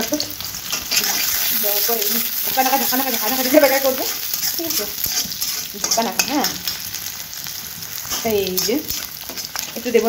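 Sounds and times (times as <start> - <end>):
onion sizzling in hot oil: 0.0 - 10.0
spatula scraping a pan: 0.6 - 9.8
woman's voice: 1.5 - 5.0, 5.7 - 6.6, 8.2 - 9.0, 9.8 - 10.0.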